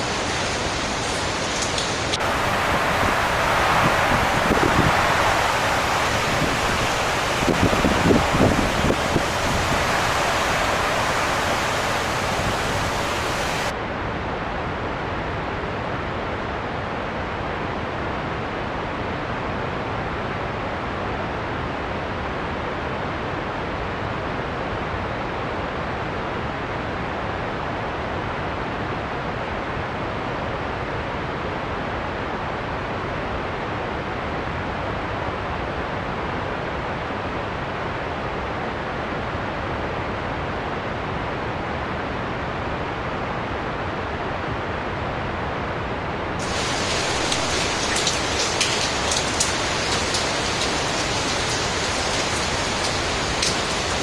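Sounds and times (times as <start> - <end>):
heavy rain: 0.0 - 13.8, 45.3 - 54.0
wind: 0.0 - 54.0.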